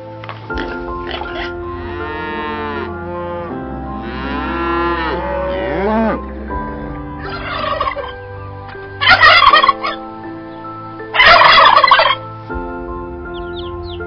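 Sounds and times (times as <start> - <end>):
turkeys gobbling: 0.6 - 1.5, 7.2 - 10.0, 11.1 - 12.2
cattle mooing: 0.6 - 8.2.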